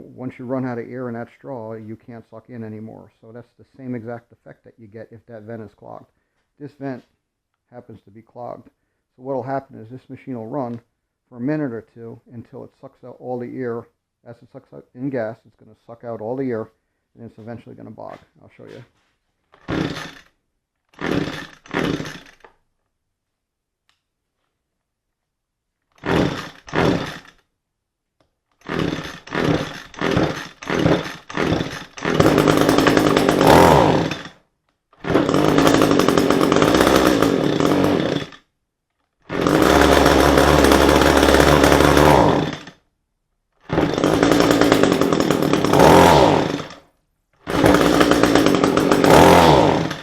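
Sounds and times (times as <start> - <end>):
string trimmer engine sputtering: 19.6 - 20.3, 21.0 - 22.5, 26.0 - 27.4, 28.6 - 34.4, 35.0 - 38.4, 39.3 - 42.7, 43.7 - 46.8, 47.5 - 50.0.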